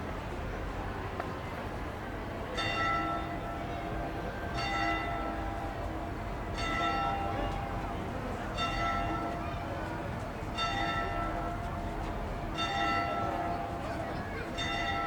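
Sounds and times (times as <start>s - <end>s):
street background noise: 0.0s - 15.0s
church bell tolling: 2.6s - 7.8s, 8.5s - 9.6s, 10.5s - 15.0s.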